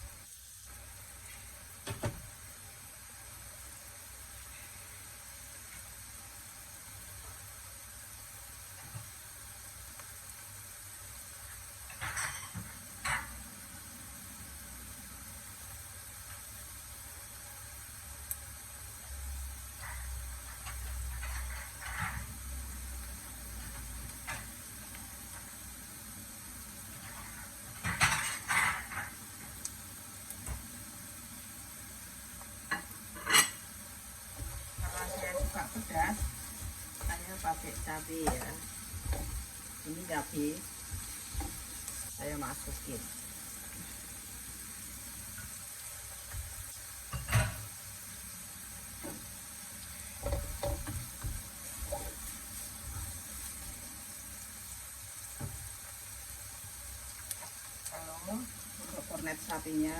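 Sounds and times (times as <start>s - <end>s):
garlic and onion sizzling: 0.0s - 59.9s
knocks on frying pan: 1.8s - 2.3s, 50.2s - 51.4s
spatula scraping a frying pan: 19.7s - 22.6s, 26.9s - 29.2s, 32.7s - 33.7s, 34.3s - 40.2s, 50.1s - 53.7s.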